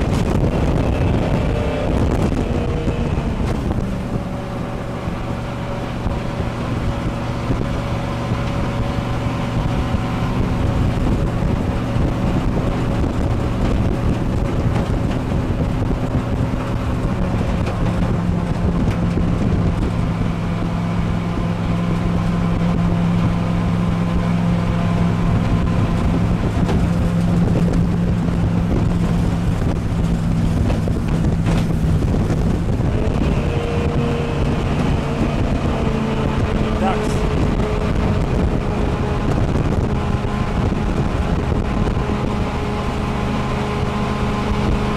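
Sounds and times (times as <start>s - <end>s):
boat engine running: 0.0s - 44.9s
water rushing: 0.0s - 44.9s
wind on microphone: 0.0s - 44.9s.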